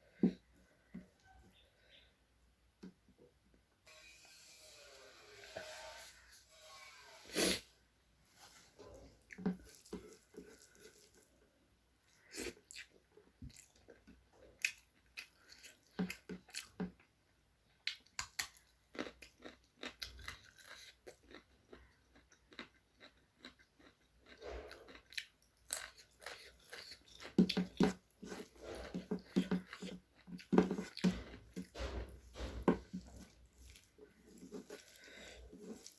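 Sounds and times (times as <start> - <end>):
chewing and crunching: 8.8 - 11.5, 12.1 - 17.0, 17.8 - 35.9.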